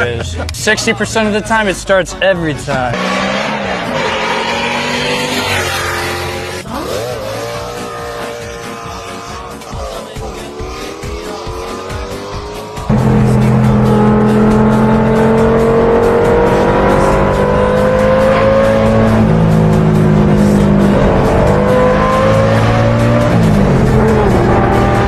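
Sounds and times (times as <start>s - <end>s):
car engine accelerating: 2.9s - 25.0s
loud music with steady beat: 8.1s - 24.9s.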